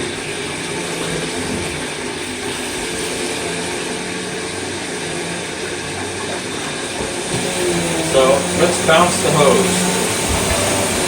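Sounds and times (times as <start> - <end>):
tap water flushing through hose: 0.0 - 11.0.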